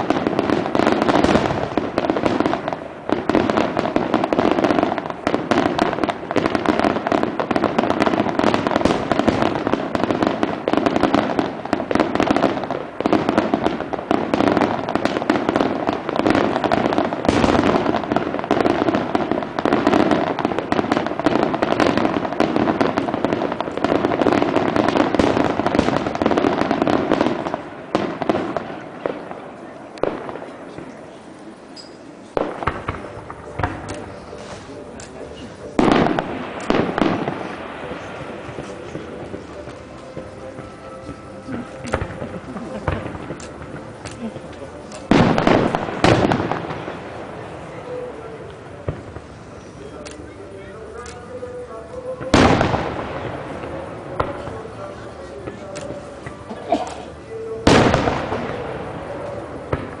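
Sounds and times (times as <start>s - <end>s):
fireworks bangs and crackling: 0.0s - 60.0s.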